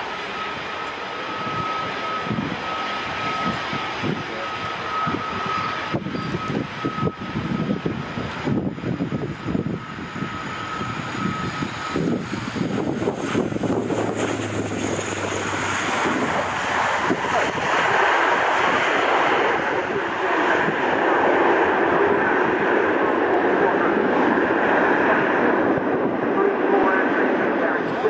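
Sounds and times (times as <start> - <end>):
aircraft engine rumble: 0.0 - 28.0
rushing noise: 8.6 - 27.8.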